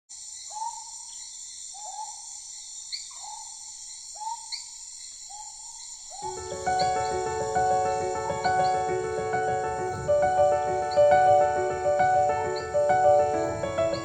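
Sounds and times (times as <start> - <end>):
high-pitched insect drone: 0.1 - 14.0
music: 6.2 - 14.0.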